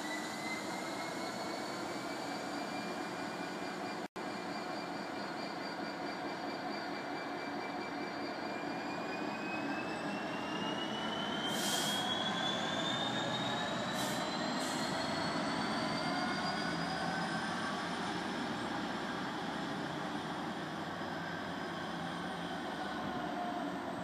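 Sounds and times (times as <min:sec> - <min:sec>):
brief high hisses: 0:11.5 - 0:12.1.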